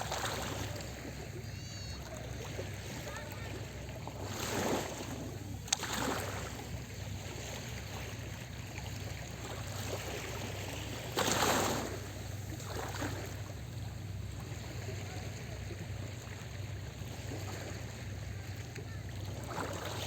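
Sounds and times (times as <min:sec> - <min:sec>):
wave breaking: 0:00.0 - 0:08.2, 0:09.4 - 0:13.6
small waves washing on shore: 0:00.0 - 0:20.0.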